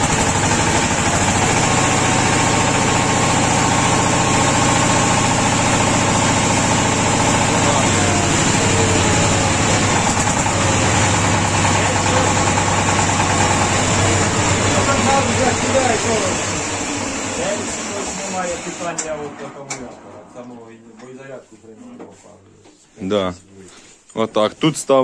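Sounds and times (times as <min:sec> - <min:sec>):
small tractor engine running: 0:00.0 - 0:19.4.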